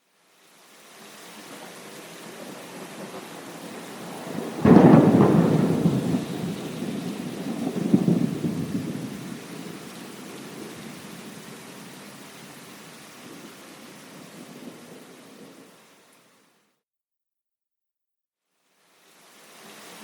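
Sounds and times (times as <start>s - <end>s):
rain hissing: 0.0s - 16.6s, 18.6s - 20.0s
thunder crack and rumble: 2.2s - 12.0s.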